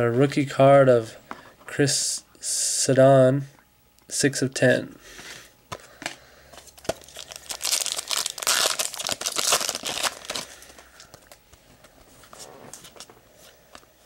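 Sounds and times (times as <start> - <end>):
wrapper crinkling and tearing: 6.8 - 11.4.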